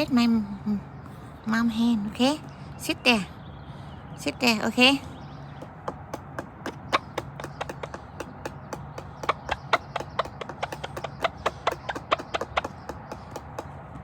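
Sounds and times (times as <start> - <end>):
sharp taps: 5.5 - 14.0.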